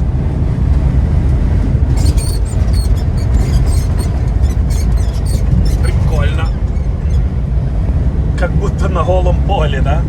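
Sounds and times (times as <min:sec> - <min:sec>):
road noise: 0:00.0 - 0:10.0
truck engine rumble: 0:00.0 - 0:10.0
high-pitched squeaks: 0:02.0 - 0:07.4.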